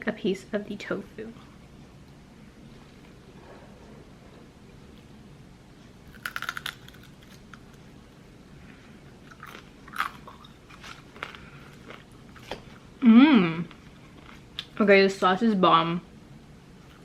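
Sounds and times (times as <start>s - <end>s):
person chewing crunchy food: 5.8s - 8.3s, 8.9s - 13.0s, 13.7s - 14.8s.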